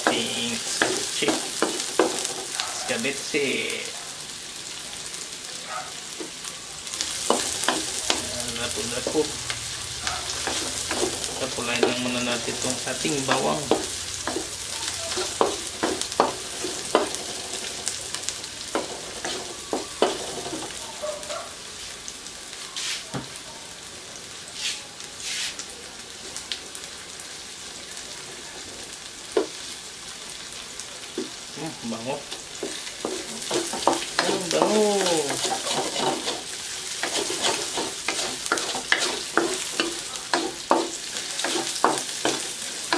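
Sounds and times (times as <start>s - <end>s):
onions sizzling in oil: 0.0s - 42.9s
wooden spatula scraping and knocking: 32.6s - 42.5s.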